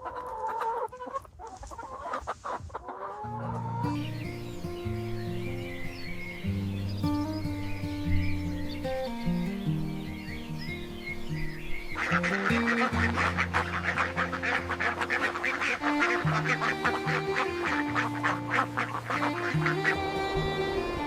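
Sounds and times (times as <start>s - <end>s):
poultry calling: 0.0s - 21.0s
soft background music: 3.3s - 21.0s.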